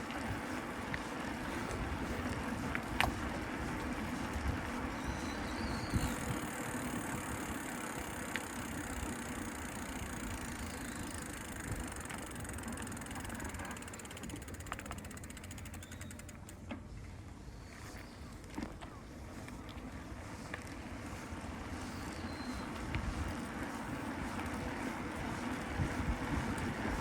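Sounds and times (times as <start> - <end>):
low traffic rumble: 16.3 - 27.0.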